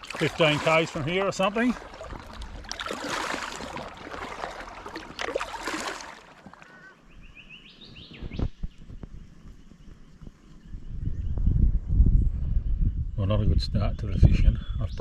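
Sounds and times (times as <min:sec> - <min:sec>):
water splashing around kayak: 0:00.0 - 0:07.2
bird chirping: 0:06.6 - 0:11.6.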